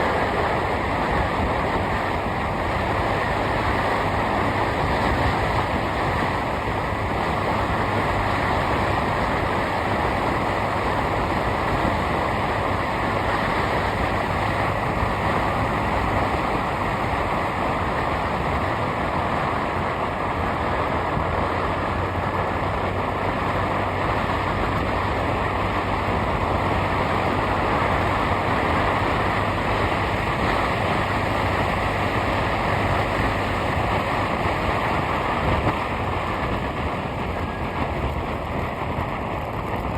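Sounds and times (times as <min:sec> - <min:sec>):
road and wind noise: 0:00.0 - 0:39.9
vehicle engine hum: 0:00.0 - 0:39.9.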